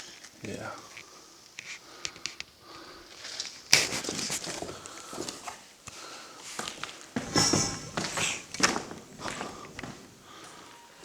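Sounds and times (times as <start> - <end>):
footsteps: 3.7 - 11.0.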